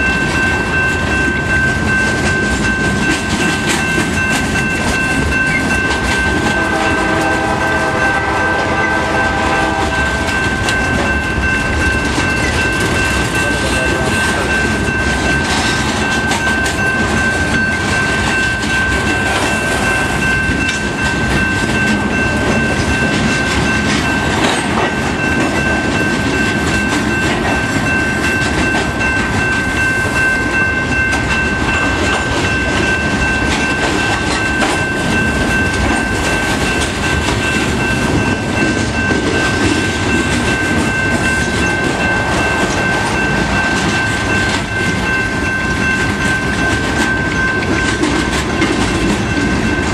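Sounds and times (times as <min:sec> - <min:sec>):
freight train wheels rumbling: 0:00.0 - 0:49.9
steady high-pitched tone: 0:00.0 - 0:49.9.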